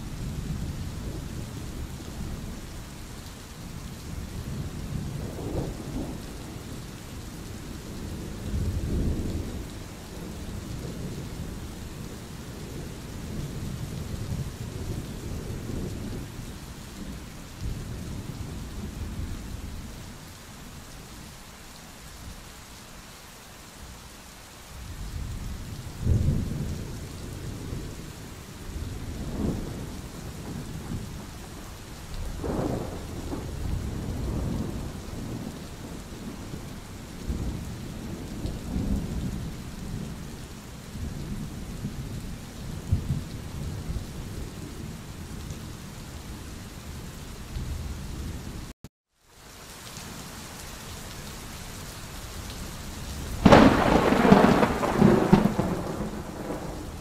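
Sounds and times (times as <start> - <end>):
steady rain: 0.0 - 57.0
rolling thunder: 28.7 - 31.6, 32.2 - 40.2, 41.0 - 44.8, 53.4 - 57.0.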